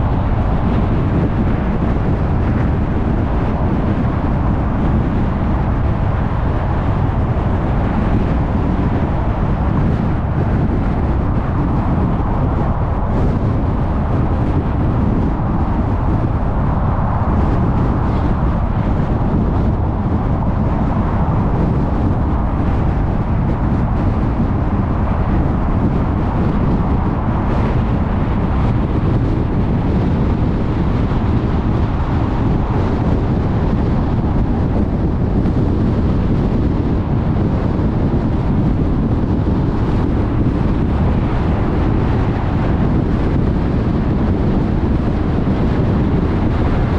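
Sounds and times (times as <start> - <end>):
tyre and road noise: 0.0 - 46.9
wind noise: 0.0 - 46.9.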